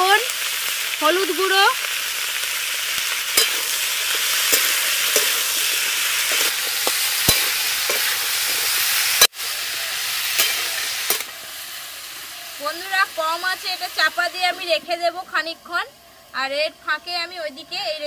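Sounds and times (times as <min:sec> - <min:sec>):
vegetables sizzling in oil: 0:00.0 - 0:18.0
metal spatula scraping a pan: 0:03.4 - 0:09.2, 0:10.3 - 0:11.4.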